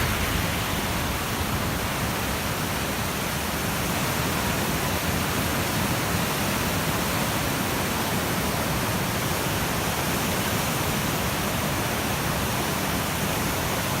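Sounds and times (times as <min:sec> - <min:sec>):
flooded river roaring: 0:00.0 - 0:14.0.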